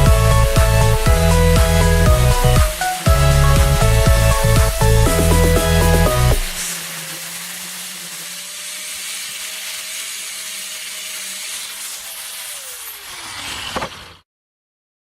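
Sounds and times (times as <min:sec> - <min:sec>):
small power tool whining: 0:00.0 - 0:14.3.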